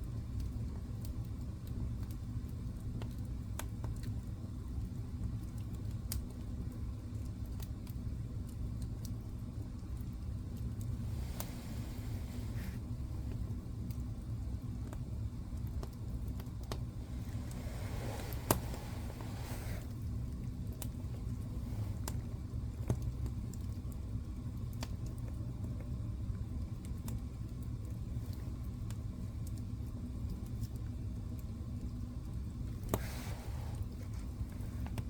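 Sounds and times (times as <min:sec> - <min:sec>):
fire crackling and popping: 0:00.0 - 0:35.0
fire rumbling: 0:00.0 - 0:35.0
brief hiss: 0:33.0 - 0:33.9.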